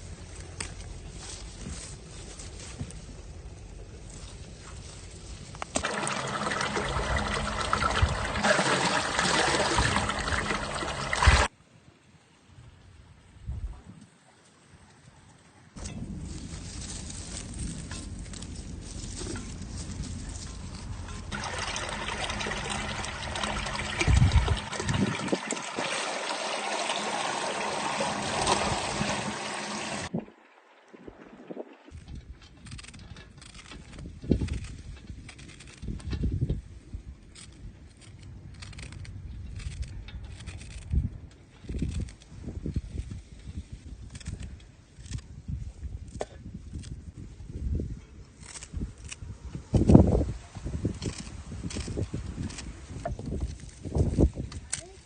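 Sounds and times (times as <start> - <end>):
water pouring: 5.8 - 11.5, 20.5 - 31.8.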